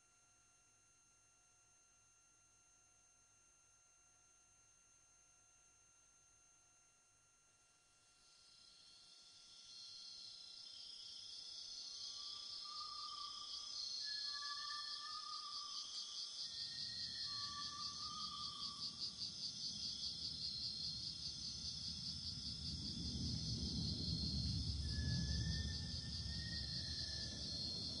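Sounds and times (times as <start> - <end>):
crickets chirping: 8.1 - 28.0
low rumble: 22.8 - 28.0.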